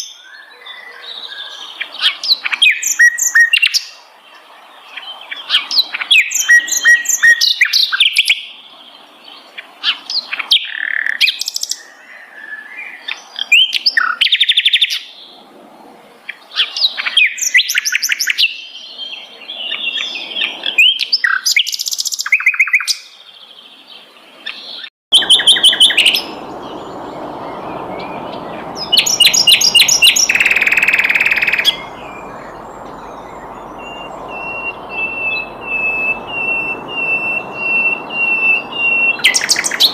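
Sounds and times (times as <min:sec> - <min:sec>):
flycatcher singing: 0:25.1 - 0:39.9.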